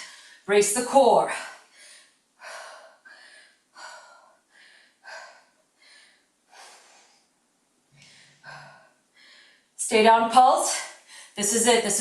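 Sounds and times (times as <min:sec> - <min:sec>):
woman breathing hard: 0:00.0 - 0:00.4, 0:01.3 - 0:07.4, 0:08.0 - 0:09.8.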